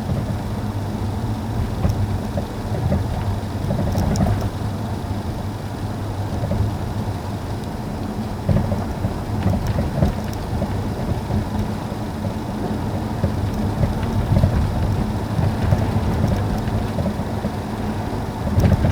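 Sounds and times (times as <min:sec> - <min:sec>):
car road noise rumble: 0:00.0 - 0:18.9.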